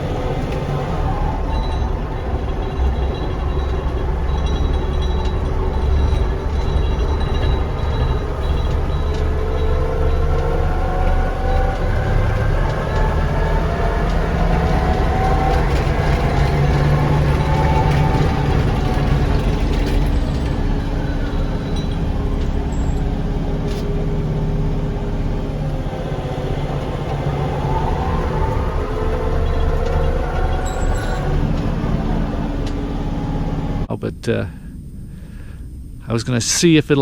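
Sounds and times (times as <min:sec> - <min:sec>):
tractor engine drone: 0:00.0 - 0:37.0
transmission whine rising in pitch: 0:00.0 - 0:37.0.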